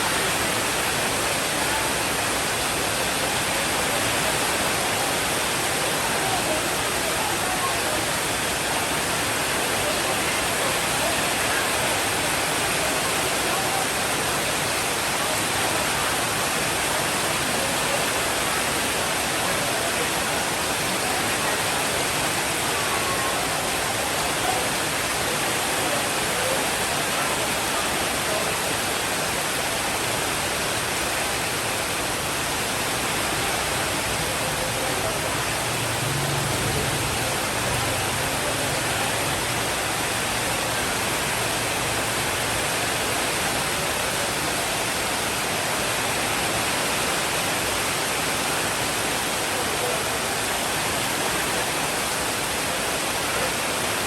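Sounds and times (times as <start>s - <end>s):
heavy rainfall: 0.0s - 54.0s.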